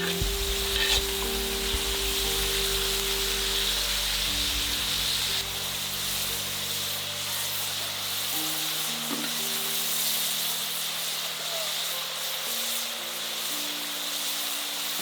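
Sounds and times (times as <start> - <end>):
stirring in a pan: 0.0 - 6.8
food sizzling in a hot pan: 0.0 - 15.0.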